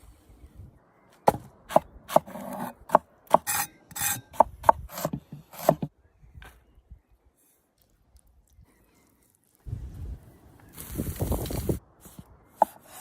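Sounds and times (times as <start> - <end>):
knife chopping on wooden board: 1.3 - 5.9
knife scraping cutting board: 3.4 - 4.2.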